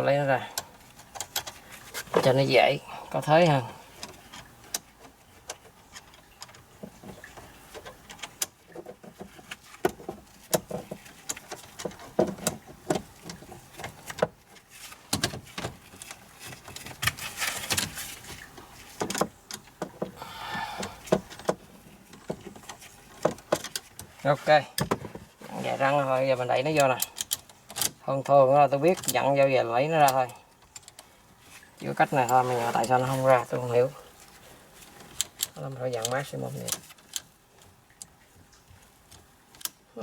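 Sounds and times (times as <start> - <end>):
brief rustle: 4.0 - 19.7.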